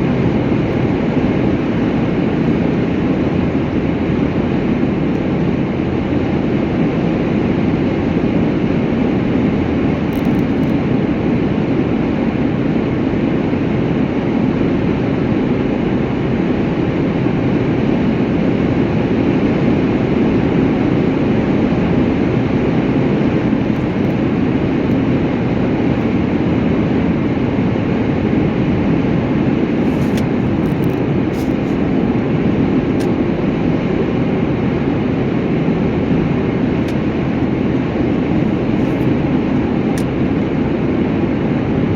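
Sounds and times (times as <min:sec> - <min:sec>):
road noise: 0:00.0 - 0:12.6, 0:17.2 - 0:41.9
vehicle engine rumble: 0:00.0 - 0:13.2, 0:17.5 - 0:41.9.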